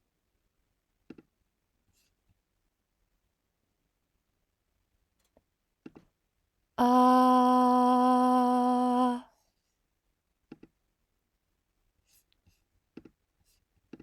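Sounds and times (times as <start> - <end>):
woman humming a note: 6.8 - 9.2.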